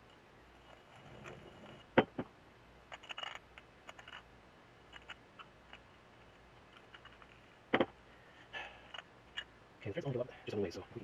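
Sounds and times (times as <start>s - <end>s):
tools and small parts clicking: 2.9s - 4.3s, 4.9s - 5.8s.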